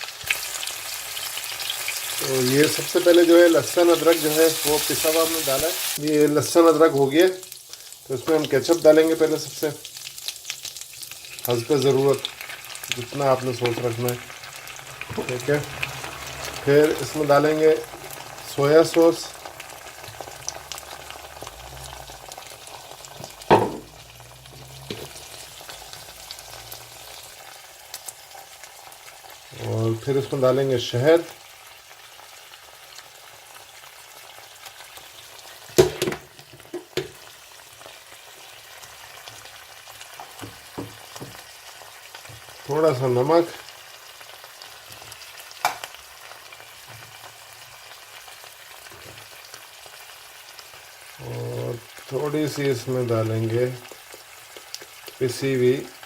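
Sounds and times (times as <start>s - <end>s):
sauce sizzling in a hot pan: 0.0s - 56.0s
sharp knock: 23.5s - 24.0s.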